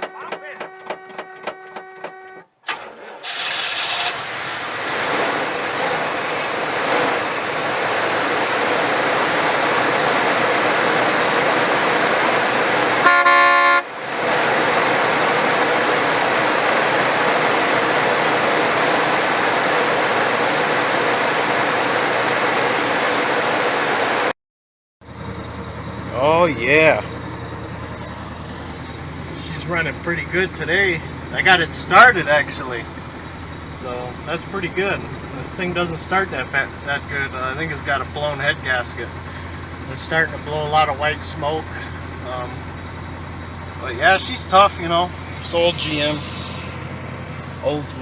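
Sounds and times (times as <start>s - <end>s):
car horn honk: 0.0s - 2.8s, 13.0s - 13.9s
car engine starting and running: 0.0s - 24.3s, 25.0s - 48.0s.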